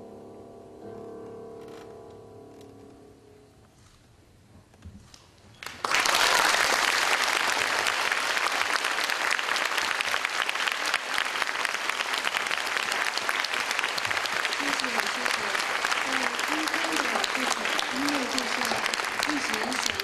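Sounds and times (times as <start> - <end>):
audience applause: 5.6 - 20.0.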